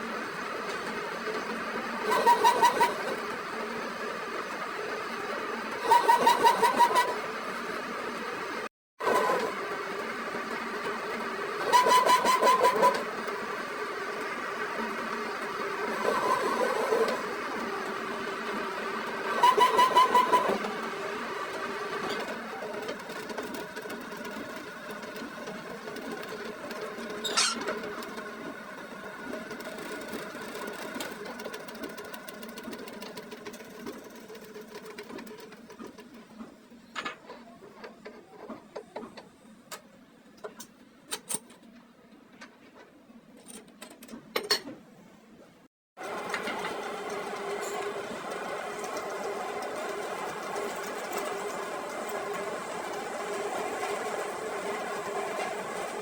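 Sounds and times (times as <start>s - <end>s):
workshop machine humming: 0.0s - 39.8s, 46.0s - 56.0s
clicks and taps of metal work: 36.9s - 44.8s.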